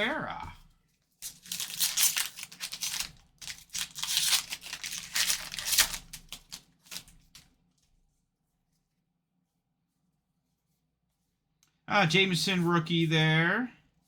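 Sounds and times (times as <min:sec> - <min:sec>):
wrapper crinkling and tearing: 0:01.2 - 0:07.5.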